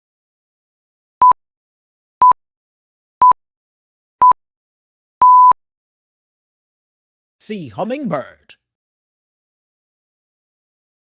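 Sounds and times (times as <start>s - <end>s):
timer beeps: 5.2s - 5.6s.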